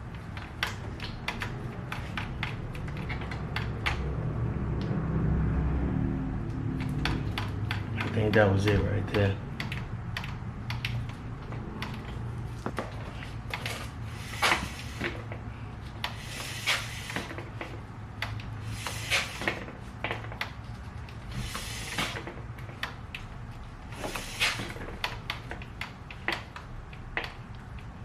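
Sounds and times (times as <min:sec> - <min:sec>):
tools clicking and scraping: 0:00.0 - 0:04.1.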